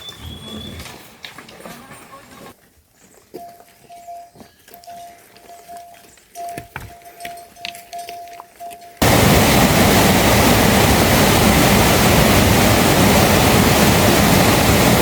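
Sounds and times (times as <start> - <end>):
rushing water: 9.0 - 15.0.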